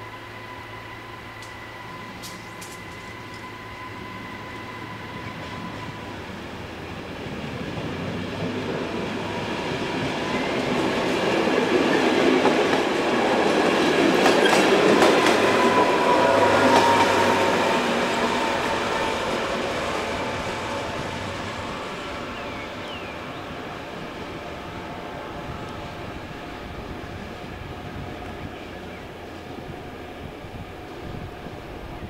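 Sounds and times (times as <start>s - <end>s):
diesel train rumble: 0.0s - 32.0s
wheels clicking over rail joints: 2.2s - 3.5s, 10.5s - 15.8s.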